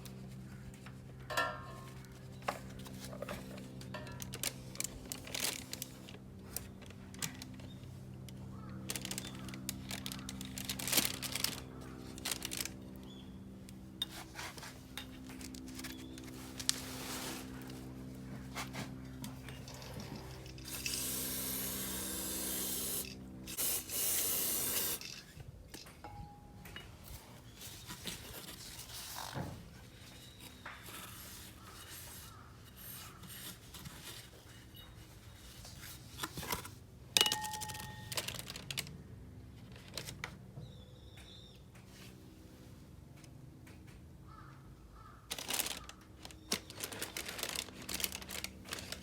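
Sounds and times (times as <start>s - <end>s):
aerosol spray can hissing: 20.7s - 25.0s.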